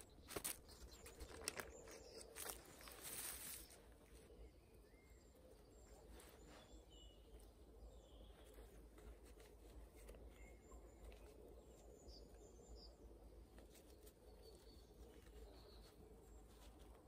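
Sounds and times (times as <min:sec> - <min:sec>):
rustles of hands handling leaves: 0:00.0 - 0:04.4, 0:05.7 - 0:12.4, 0:13.2 - 0:17.0.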